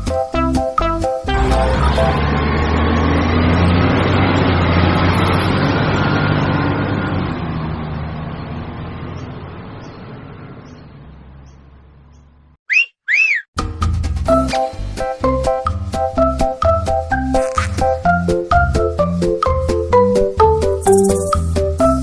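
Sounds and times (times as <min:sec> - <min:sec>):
small diesel engine droning: 0:01.2 - 0:12.6, 0:16.2 - 0:22.0.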